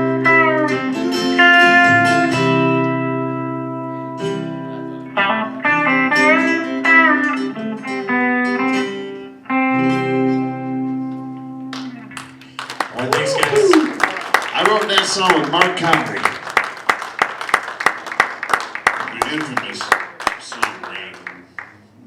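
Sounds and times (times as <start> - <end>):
guitar lead with bending notes: 0.0 - 12.6
country band playing: 0.0 - 21.6.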